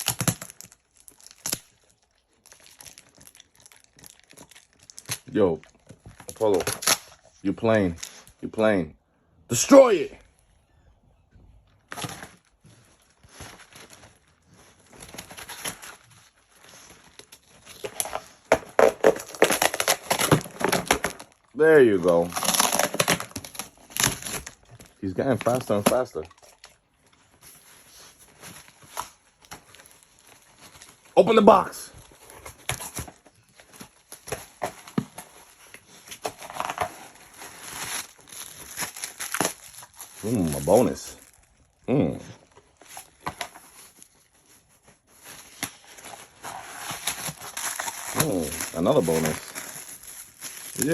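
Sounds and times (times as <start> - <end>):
dog tearing cardboard box: 0.0 - 1.8, 2.5 - 8.3, 11.9 - 21.4, 22.0 - 26.8, 32.0 - 41.1, 42.8 - 50.9.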